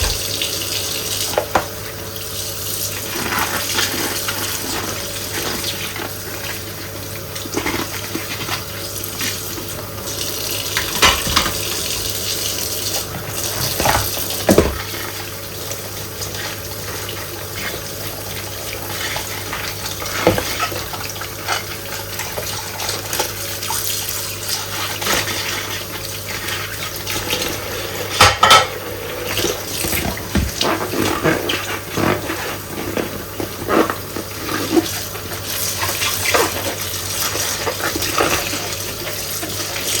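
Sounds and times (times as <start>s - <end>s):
tap running water: 0.0s - 40.0s
dishes clinking: 28.0s - 29.4s.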